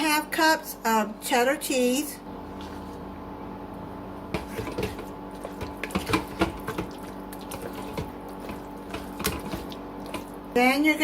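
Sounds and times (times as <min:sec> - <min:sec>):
steady low hum: 0:00.0 - 0:11.0
utensil stirring wet mixture: 0:04.3 - 0:11.0.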